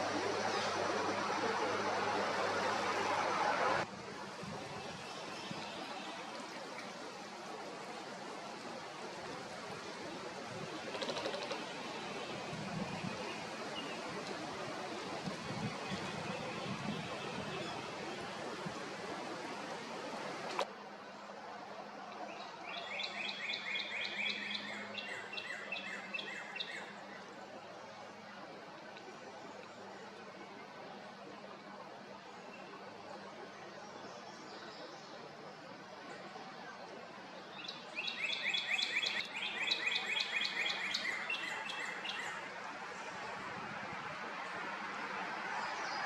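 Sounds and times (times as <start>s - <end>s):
songbird singing: 4.8s - 7.0s, 10.8s - 18.4s, 22.2s - 27.4s, 36.7s - 43.2s
songbird singing repeated notes: 22.3s - 27.2s, 37.4s - 42.4s.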